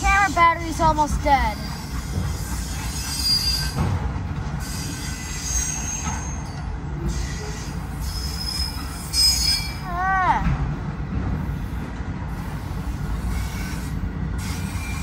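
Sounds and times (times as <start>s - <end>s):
freight cars rumbling on rails: 0.0s - 15.0s
high-pitched wheel squeals: 1.6s - 3.8s, 4.6s - 9.9s.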